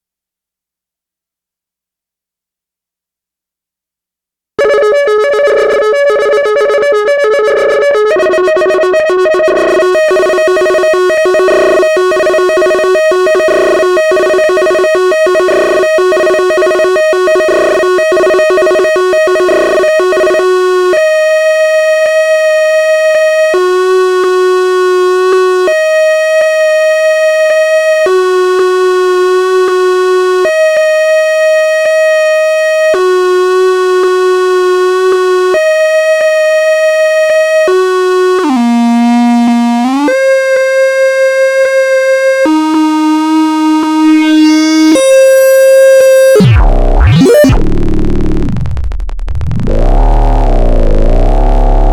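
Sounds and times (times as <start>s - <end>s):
synthesizer two-note tone: 4.6s - 20.4s, 37.7s - 51.9s.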